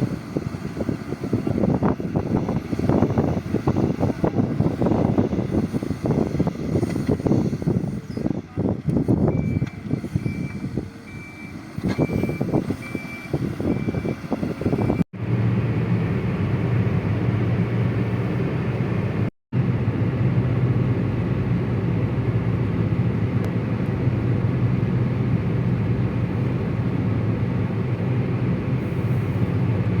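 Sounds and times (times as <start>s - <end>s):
reversing alarm beeps: 9.3s - 15.0s.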